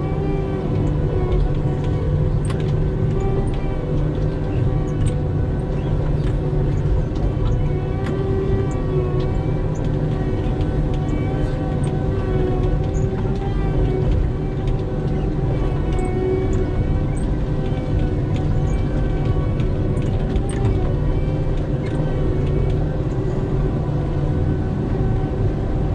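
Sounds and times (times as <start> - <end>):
vehicle engine running: 0.0 - 25.9.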